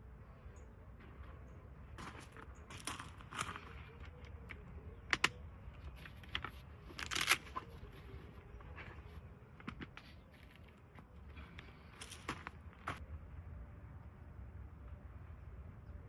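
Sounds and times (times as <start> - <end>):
low steady rumble: 0.0 - 16.0
gear clicks: 2.0 - 8.7
rustling: 5.8 - 13.0.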